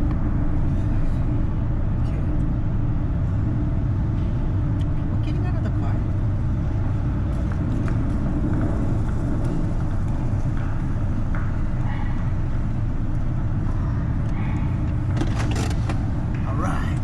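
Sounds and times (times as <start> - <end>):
low rumble of ship engines: 0.0 - 17.0.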